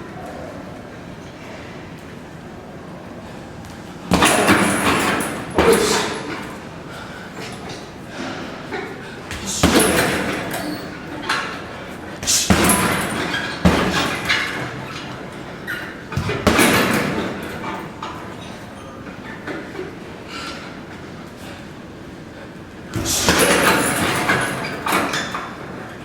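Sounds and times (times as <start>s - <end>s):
strikes thudding on a pad: 12.2s - 14.4s.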